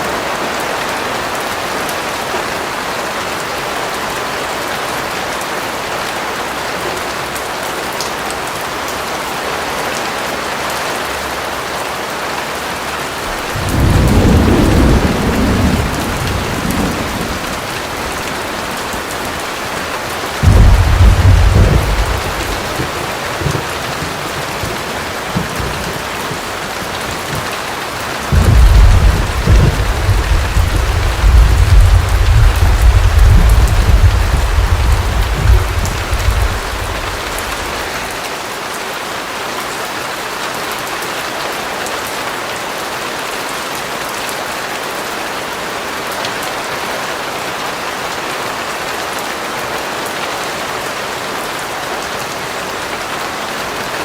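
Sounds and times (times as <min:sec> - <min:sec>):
heavy rain: 0:00.0 - 0:54.0
thunder rumbling: 0:13.2 - 0:38.2.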